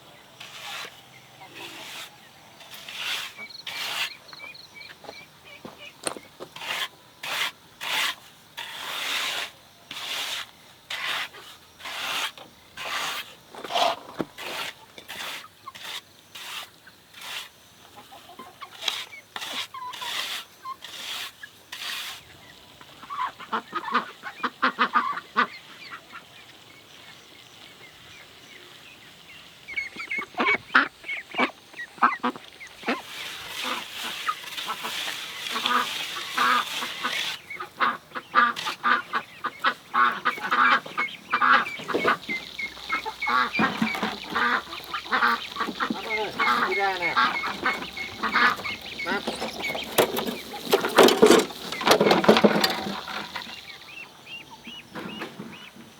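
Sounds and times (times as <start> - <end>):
poultry calling: 29.9 - 55.8
rhythmic rasping strokes: 40.1 - 53.6.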